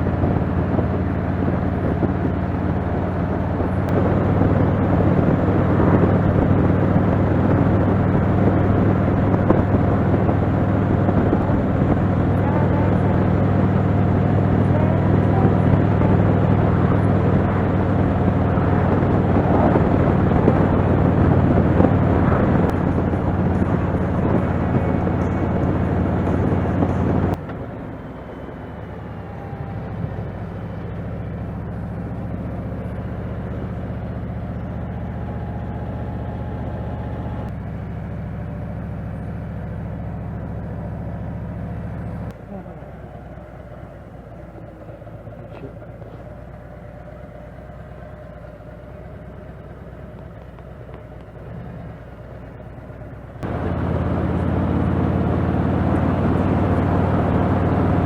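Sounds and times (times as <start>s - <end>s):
rushing wind noise: 0.0s - 37.5s, 53.4s - 58.0s
motorcycle engine running: 0.0s - 58.0s.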